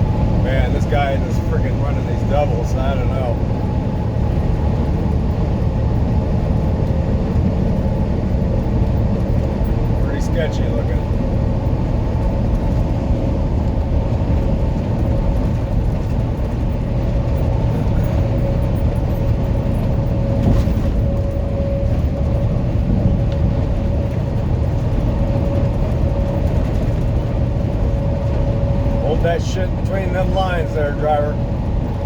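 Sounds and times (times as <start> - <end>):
truck engine deep rumble: 0.0 - 32.0.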